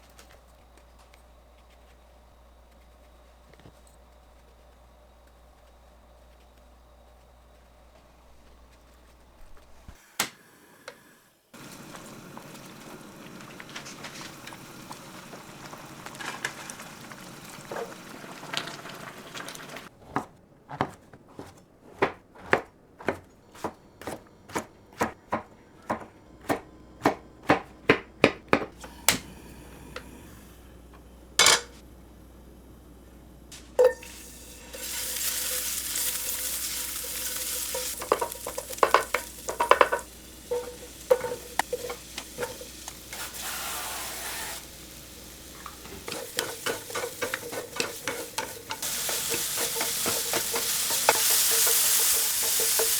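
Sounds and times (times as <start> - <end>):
food sizzling in hot oil: 11.6 - 19.9, 33.8 - 52.9.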